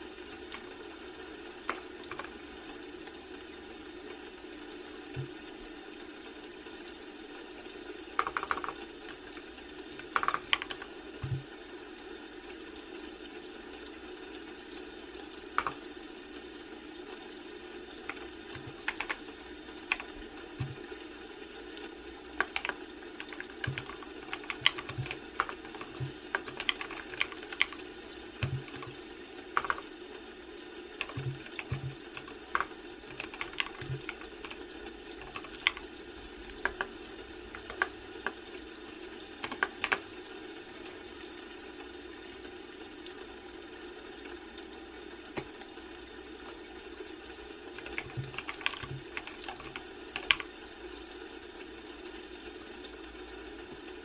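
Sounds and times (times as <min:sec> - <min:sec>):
low background hum: 0:00.0 - 0:54.0
computer keyboard typing: 0:00.3 - 0:02.6, 0:07.5 - 0:11.5, 0:15.2 - 0:16.0, 0:17.2 - 0:21.0, 0:22.3 - 0:30.0, 0:30.9 - 0:40.7, 0:47.4 - 0:50.6.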